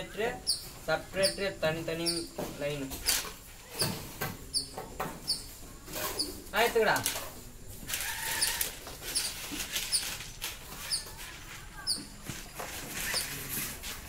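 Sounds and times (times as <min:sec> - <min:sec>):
small birds chirping: 0:00.0 - 0:02.4, 0:04.5 - 0:06.7, 0:08.2 - 0:12.2.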